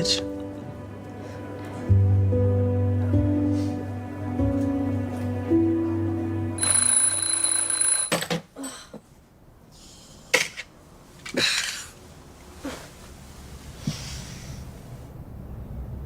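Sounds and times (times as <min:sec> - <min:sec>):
bell ringing: 0:06.6 - 0:08.2.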